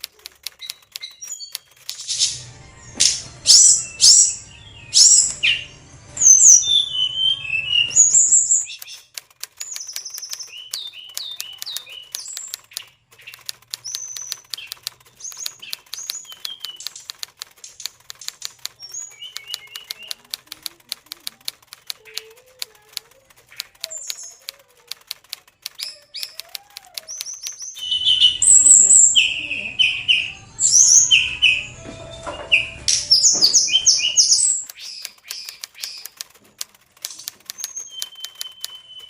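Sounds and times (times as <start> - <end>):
rapid fine clicking: 0.0 - 2.4, 7.9 - 27.9, 33.3 - 39.0
bird singing whistled phrases: 3.4 - 9.0, 9.7 - 12.9, 13.8 - 16.9, 18.8 - 20.2, 27.1 - 31.7, 32.5 - 36.1, 37.5 - 39.0.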